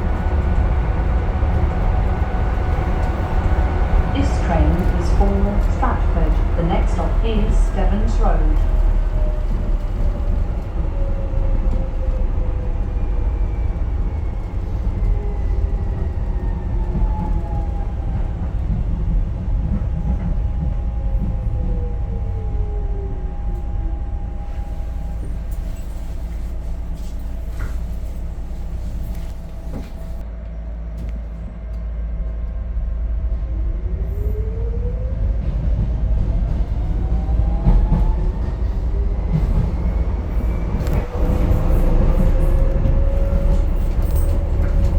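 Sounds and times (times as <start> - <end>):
train rumble: 0.0 - 44.9.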